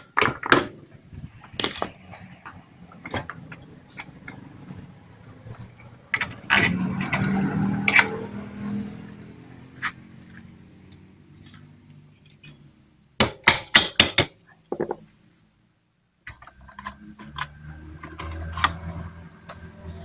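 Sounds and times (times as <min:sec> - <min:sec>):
metal tools clanking: 0:01.4 - 0:02.4.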